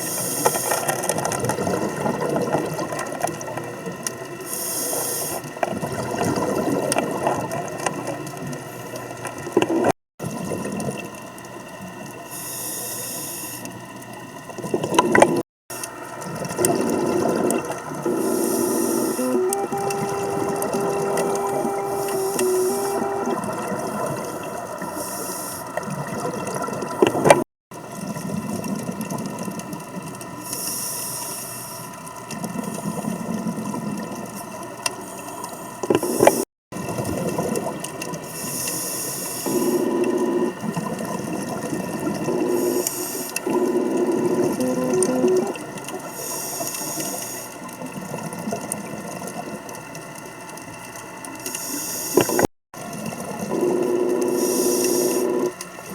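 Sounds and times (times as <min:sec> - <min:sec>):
bubbles gurgling: 0:01.1 - 0:04.0, 0:05.6 - 0:08.5, 0:14.4 - 0:29.8, 0:35.9 - 0:38.3, 0:39.5 - 0:46.1, 0:52.2 - 0:55.9
regulator breathing hiss: 0:04.4 - 0:05.5, 0:12.3 - 0:13.7, 0:18.1 - 0:25.8, 0:30.4 - 0:31.8, 0:38.3 - 0:39.9, 0:42.5 - 0:43.4, 0:46.1 - 0:47.6, 0:51.5 - 0:52.5, 0:54.3 - 0:55.5.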